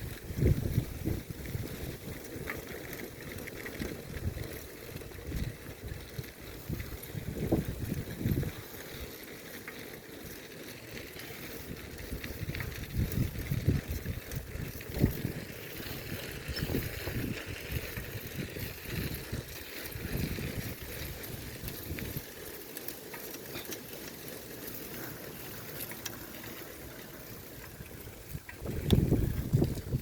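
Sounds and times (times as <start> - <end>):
wind buffeting microphone: 0.0 - 9.1, 11.2 - 22.4, 27.3 - 30.0
faint ticks: 24.9 - 29.9.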